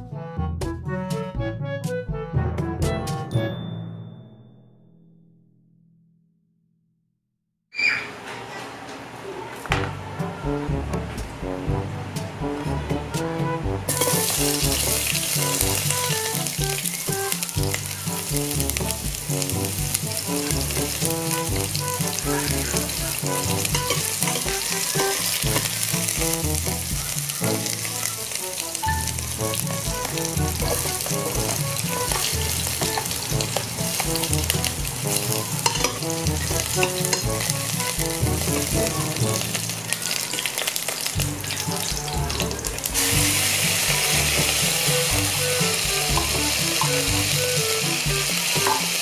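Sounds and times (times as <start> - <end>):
background music: 0.0 - 4.2, 9.7 - 49.0
onion sizzling in hot fat: 13.9 - 49.0.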